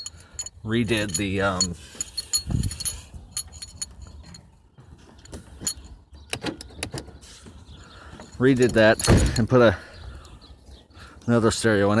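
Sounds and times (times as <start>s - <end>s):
metallic clinks and jingles: 0.0s - 6.1s, 7.8s - 9.9s.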